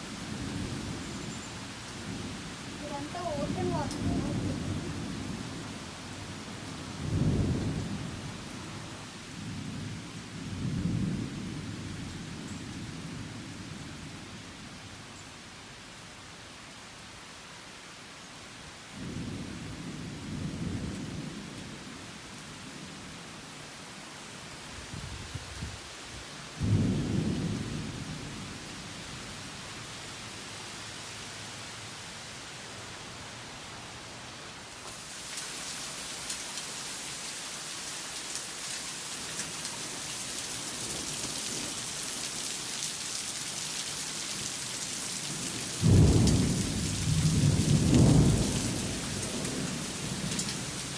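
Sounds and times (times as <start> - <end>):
heavy rain hissing: 0.0 - 9.9, 24.4 - 50.9
thunder rumbling: 2.0 - 5.6, 7.0 - 8.7, 26.6 - 28.7, 45.8 - 50.9.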